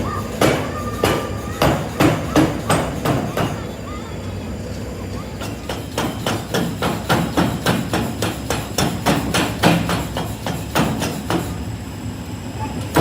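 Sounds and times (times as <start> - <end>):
hammer on metal: 0.2 - 3.6, 5.4 - 11.6.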